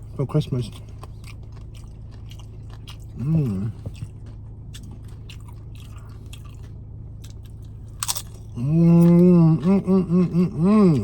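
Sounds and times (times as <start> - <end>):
chewing crunchy chips: 0.0 - 9.9
person humming: 8.6 - 11.0.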